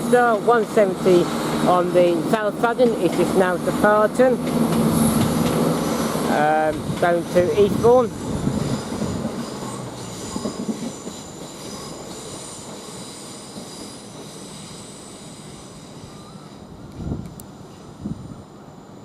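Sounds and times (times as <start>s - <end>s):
diesel train pulling away: 0.0s - 19.0s
wheels squealing on rails: 0.0s - 19.0s.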